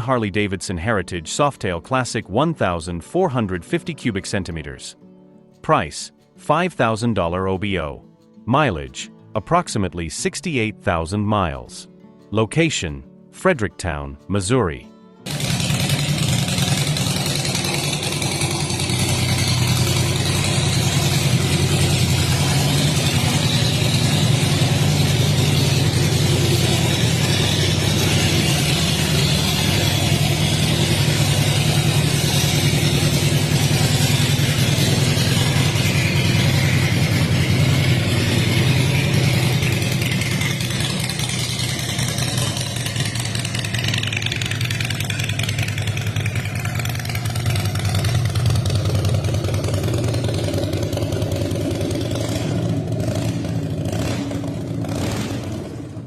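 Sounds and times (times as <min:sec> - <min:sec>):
motorcycle engine running: 0:15.2 - 0:56.0.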